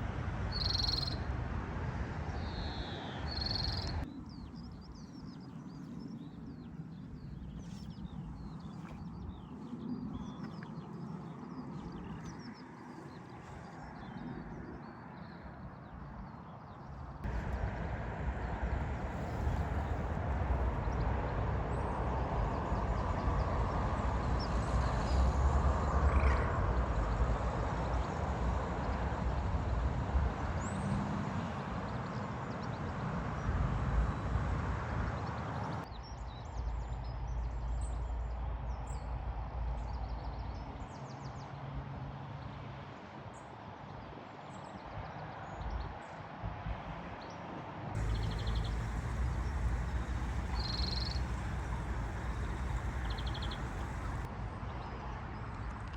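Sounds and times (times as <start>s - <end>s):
road traffic noise: 0.0s - 4.1s, 17.2s - 35.9s, 48.0s - 55.9s
vehicle passing: 17.2s - 22.9s, 48.0s - 54.4s
short bird chirps: 48.0s - 54.2s.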